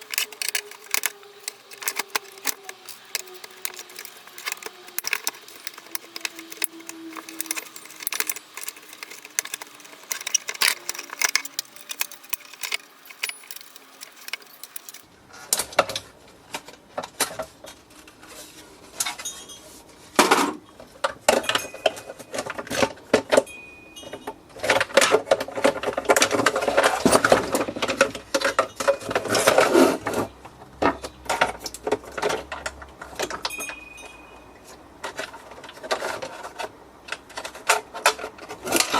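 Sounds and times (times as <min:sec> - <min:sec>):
clicks and taps of machine parts: 0:00.0 - 0:15.0
rattling and scraping: 0:00.0 - 0:15.0
plastic and metal rattles: 0:00.0 - 0:15.1.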